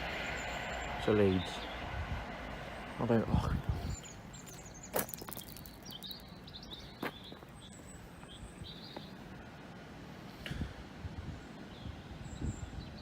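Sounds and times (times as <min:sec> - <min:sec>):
birds chirping faintly: 0:03.2 - 0:09.6.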